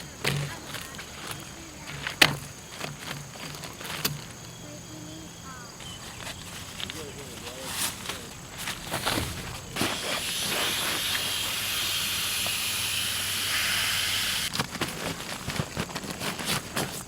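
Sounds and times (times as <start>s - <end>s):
light knocks and rustles: 5.8s - 10.0s
steady hiss: 5.8s - 17.0s.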